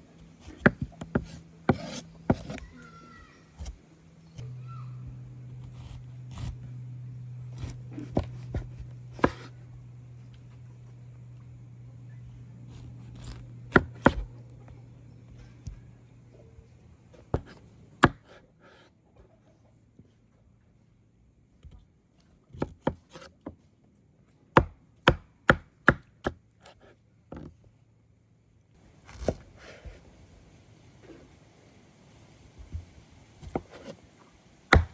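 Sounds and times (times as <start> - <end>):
knife chopping food: 0.4 - 2.7, 3.6 - 3.8, 5.5 - 6.7, 7.5 - 9.6, 12.6 - 14.8, 17.3 - 18.4, 33.4 - 34.0.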